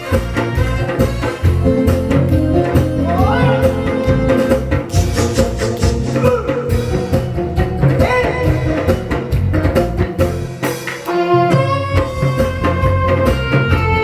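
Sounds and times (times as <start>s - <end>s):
drum kit: 0.0s - 14.0s
guitar: 0.0s - 14.0s
live band music: 0.0s - 14.0s
person singing: 1.6s - 9.4s.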